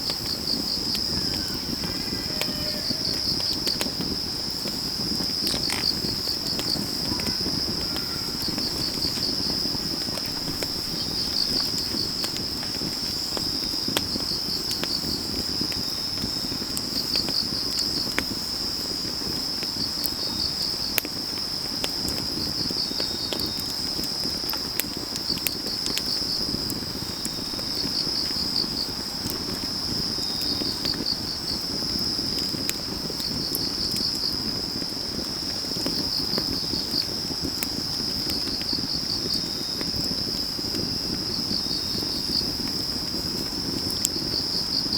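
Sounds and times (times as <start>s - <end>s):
insect chirping in pulses: 0.0s - 15.6s
wood fire crackling: 0.0s - 44.9s
insect high trill: 0.7s - 4.1s.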